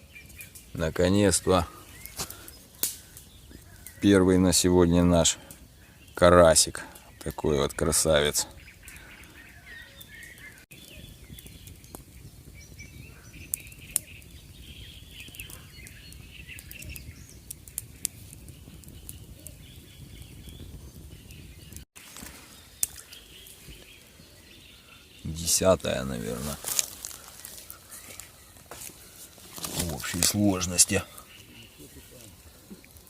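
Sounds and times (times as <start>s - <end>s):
small birds chirping: 0.0s - 33.0s
low outdoor background noise: 22.0s - 33.0s.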